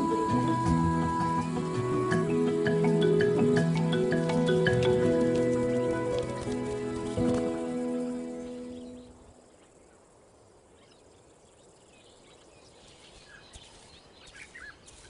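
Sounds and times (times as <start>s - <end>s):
music with long held notes: 0.0s - 9.2s
outdoor bush ambience: 0.0s - 15.0s
soft bird chirps: 7.7s - 15.0s.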